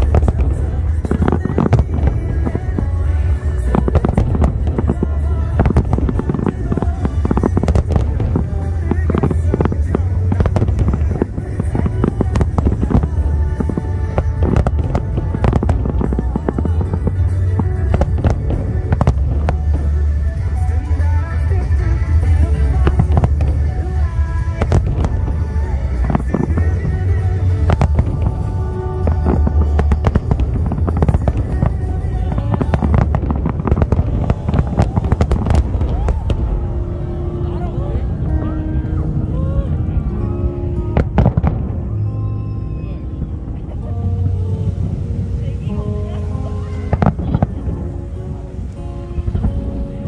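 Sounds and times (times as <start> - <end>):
constant low rumble: 0.0 - 50.0
fireworks bangs and crackles: 0.0 - 50.0
music: 0.0 - 50.0.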